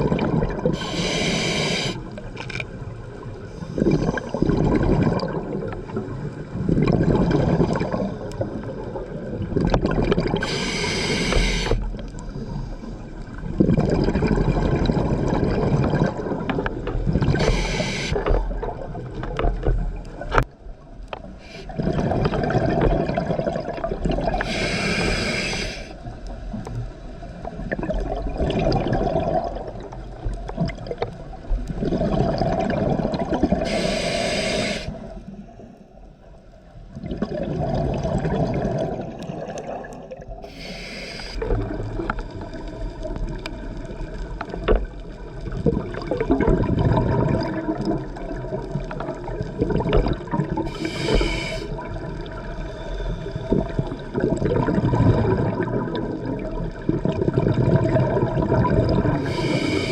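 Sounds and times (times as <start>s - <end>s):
bubbling underwater exhalation: 0.0s - 2.1s, 3.8s - 6.0s, 6.6s - 11.8s, 13.4s - 18.9s, 21.5s - 25.9s, 27.6s - 31.0s, 31.8s - 35.1s, 37.0s - 43.1s, 45.5s - 59.9s
regulator inhalation hiss: 0.8s - 2.1s, 10.4s - 11.9s, 17.4s - 18.4s, 21.4s - 21.8s, 24.4s - 26.0s, 33.6s - 35.2s, 40.4s - 41.5s, 50.7s - 51.8s, 59.2s - 59.9s.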